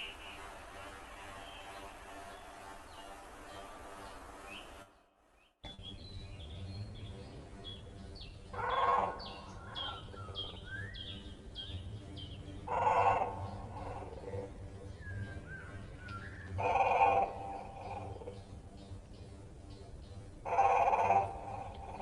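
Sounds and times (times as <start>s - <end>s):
harsh bird calls: 0.0s - 4.9s, 5.7s - 18.9s, 20.4s - 22.0s
small birds chirping: 5.4s - 22.0s.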